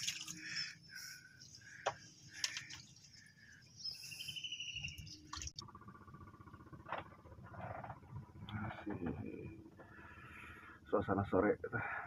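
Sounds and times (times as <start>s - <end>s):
birds chirping faintly: 0.0s - 5.6s
bird trill: 2.7s - 5.5s.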